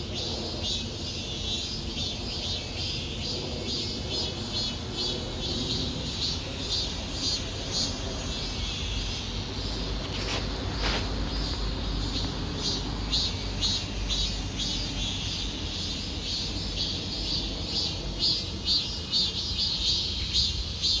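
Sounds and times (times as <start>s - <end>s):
insects chirping in pulses: 0.0s - 21.0s.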